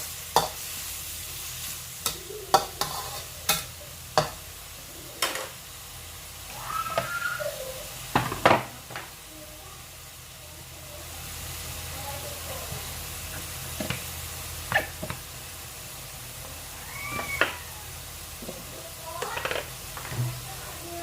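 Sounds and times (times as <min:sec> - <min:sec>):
food sizzling in a wok: 0:00.0 - 0:21.0
spatula scraping and knocking pan: 0:02.1 - 0:04.4.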